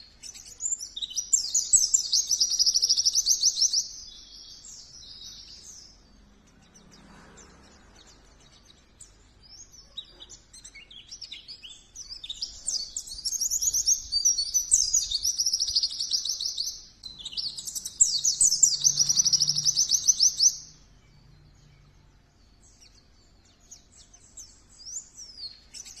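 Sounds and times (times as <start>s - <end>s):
bird warbling trills: 12.4s - 20.8s.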